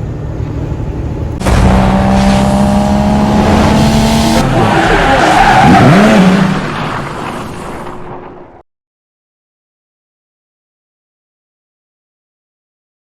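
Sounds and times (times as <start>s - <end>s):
car engine revving: 1.4s - 7.6s.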